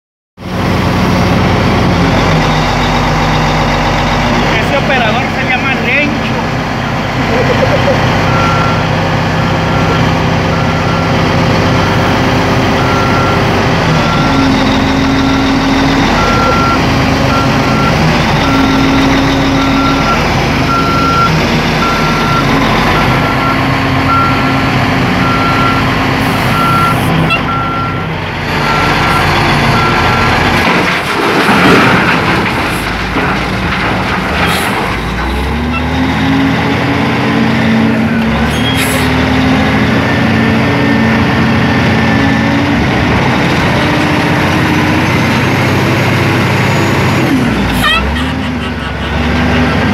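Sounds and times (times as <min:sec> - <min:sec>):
diesel engine running: 0:00.4 - 0:49.9
reversing alarm beeping: 0:07.6 - 0:08.9, 0:09.7 - 0:11.2, 0:12.8 - 0:24.5, 0:25.2 - 0:30.3.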